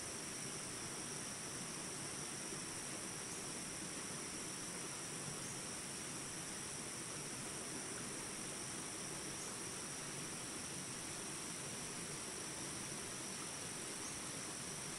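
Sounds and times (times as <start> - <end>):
insects chirring: 0.0 - 14.9.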